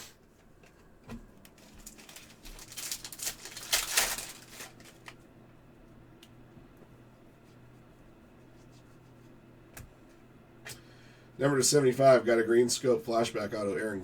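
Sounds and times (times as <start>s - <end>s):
faint hum: 0.0s - 14.0s
card packaging rustling and clicking: 1.4s - 5.2s.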